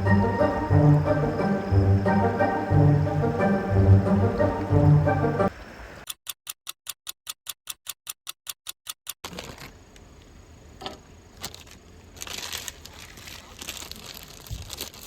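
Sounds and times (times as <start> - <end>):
clock ticking fast: 0.0 - 9.2
faint clicks and crinkling: 9.2 - 15.0.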